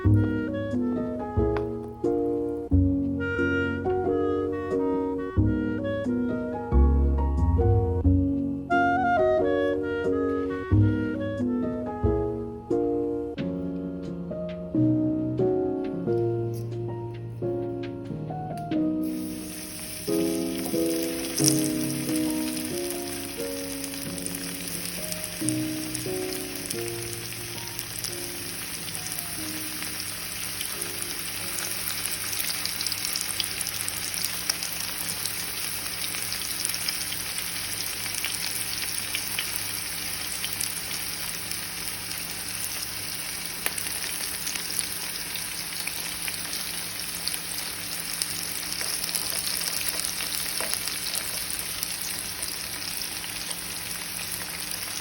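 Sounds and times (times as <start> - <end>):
background music: 0.0 - 32.5
fish deep-frying in oil: 19.0 - 55.0.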